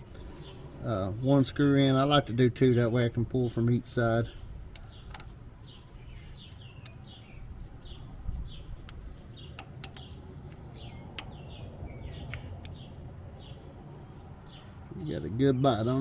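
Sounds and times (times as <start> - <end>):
birds chirping: 0.0 - 16.0
sharp clicks: 4.1 - 5.3, 6.5 - 7.0, 8.8 - 11.4, 12.2 - 12.8.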